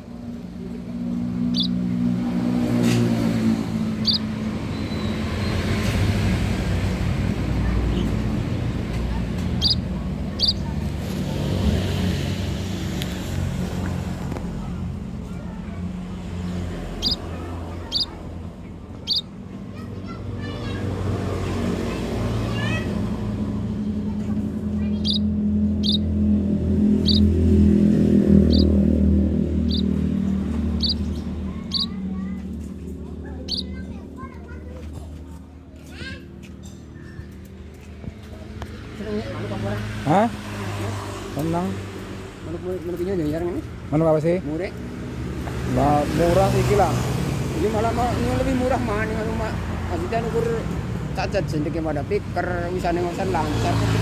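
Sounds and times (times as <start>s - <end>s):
small birds chirping: 0.0s - 35.2s
vehicle engine running: 0.0s - 40.8s
high bird chirp: 1.3s - 2.1s, 3.2s - 6.1s, 9.2s - 10.9s, 16.5s - 19.4s, 24.8s - 32.3s, 33.4s - 34.0s.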